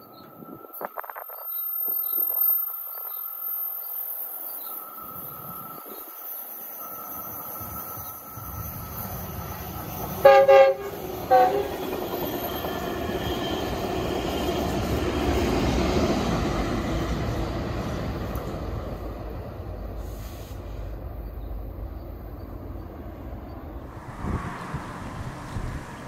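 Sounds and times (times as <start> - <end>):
passing train rumble: 2.9 - 26.0
locomotive air horn blasts: 10.2 - 12.0.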